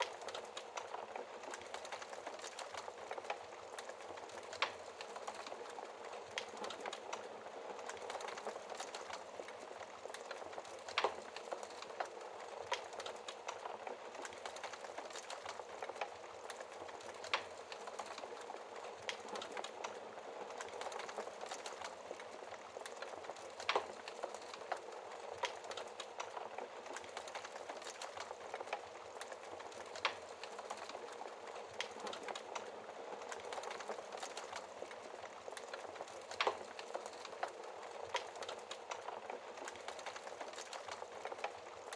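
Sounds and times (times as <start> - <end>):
wood fire crackling: 0.0 - 41.9
fire pops: 20.6 - 41.5.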